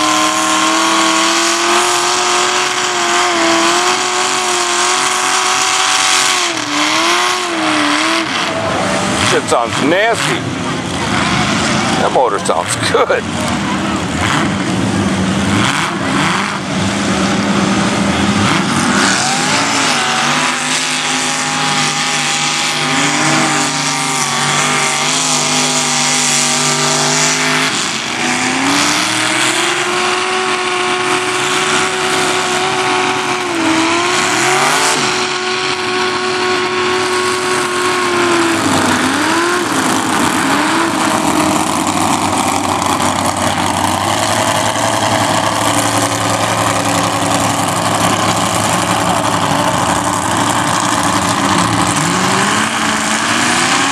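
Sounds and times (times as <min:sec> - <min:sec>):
truck engine revving hard: 0:00.0 - 0:53.9.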